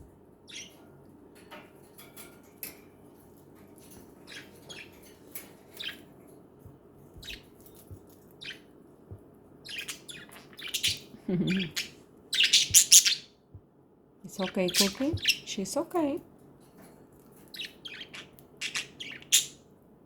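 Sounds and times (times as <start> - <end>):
budgies chirping: 0.4 - 0.8, 4.2 - 6.1, 7.2 - 8.7, 9.6 - 13.4, 14.3 - 15.8, 17.4 - 19.7.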